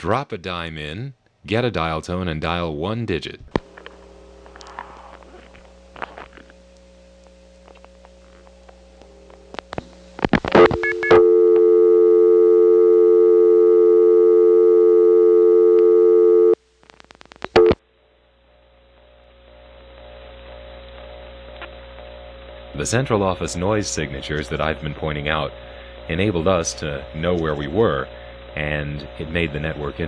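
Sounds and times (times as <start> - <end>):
faint line hum: 3.4 - 30.0
two-note dial tone: 10.6 - 16.6.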